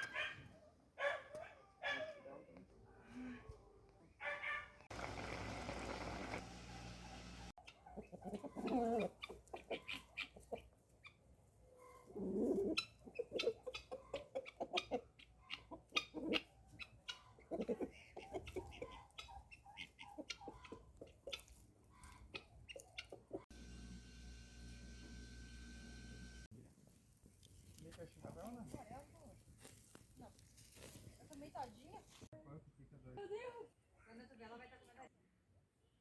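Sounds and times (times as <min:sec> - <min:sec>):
chickens clucking: 0:04.9 - 0:11.2, 0:11.8 - 0:23.5.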